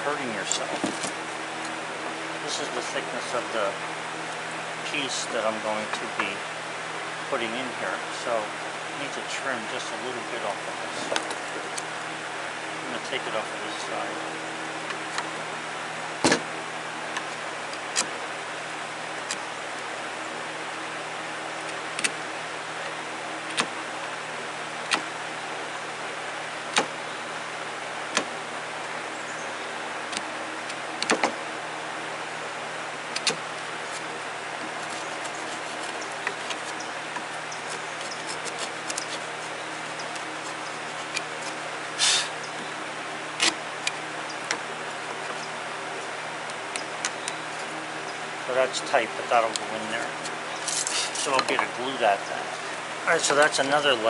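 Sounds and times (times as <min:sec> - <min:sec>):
scraping on wood: 0:33.1 - 0:42.4, 0:49.6 - 0:51.8.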